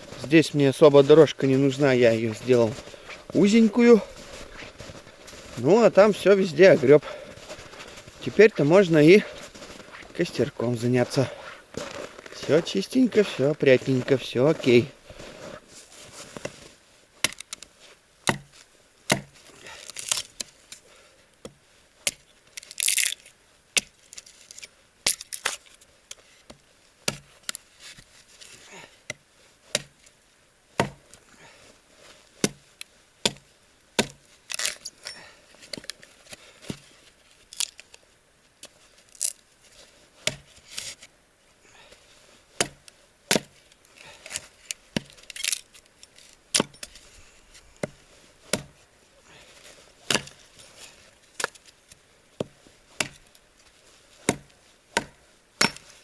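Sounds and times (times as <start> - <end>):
wood chopping knocks: 19.1 - 19.4, 30.8 - 31.0, 42.6 - 43.5, 47.8 - 48.8, 54.3 - 55.8
wood splintering scrapes: 34.0 - 36.2.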